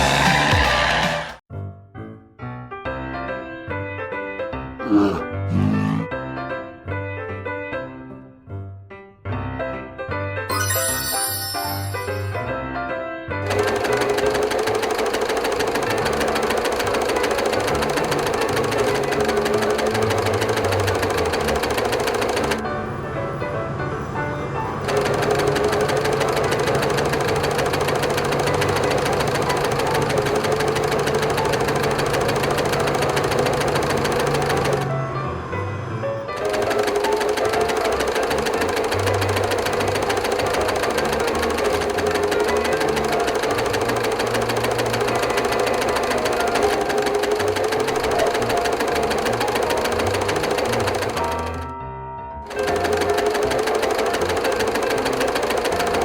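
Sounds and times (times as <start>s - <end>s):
farm machine engine knocking: 13.5s - 22.6s, 24.9s - 34.9s, 36.4s - 51.6s, 52.5s - 56.0s.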